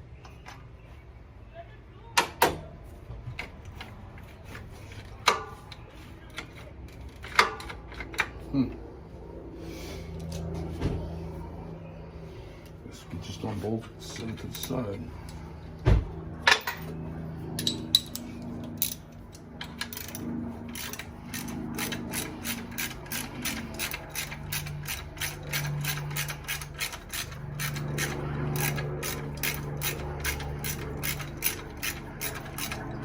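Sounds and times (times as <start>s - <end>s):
ratchet wrench clicking: 19.6s - 32.8s.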